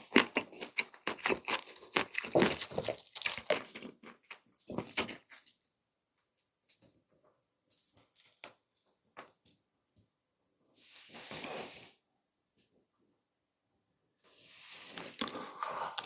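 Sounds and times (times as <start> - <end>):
wet chewing clicks: 0.0 - 5.2, 15.2 - 16.0
rustling: 14.3 - 16.0.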